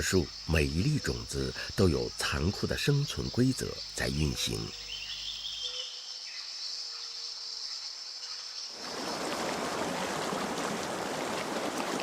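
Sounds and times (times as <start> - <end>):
insect chorus: 0.0 - 12.0
stream rushing and babbling: 8.8 - 12.0.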